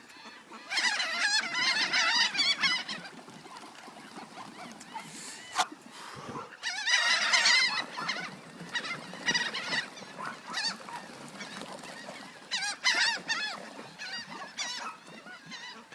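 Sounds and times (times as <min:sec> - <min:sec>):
birds calling: 0:00.0 - 0:15.9.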